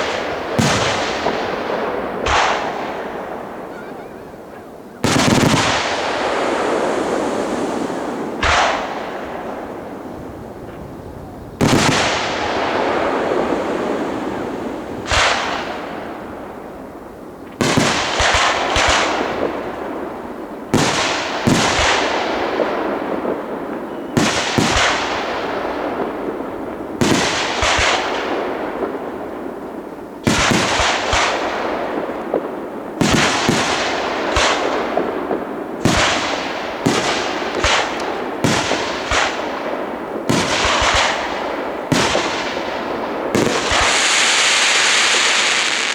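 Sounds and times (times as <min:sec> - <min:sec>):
fireworks bursting with crackling: 0:00.0 - 0:45.9.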